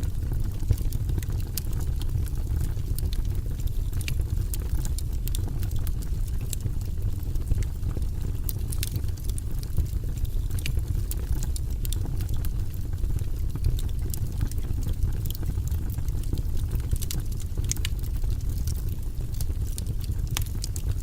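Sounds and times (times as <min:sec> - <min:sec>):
fire crackling and popping: 0:00.0 - 0:21.0
roar of flames: 0:00.0 - 0:21.0.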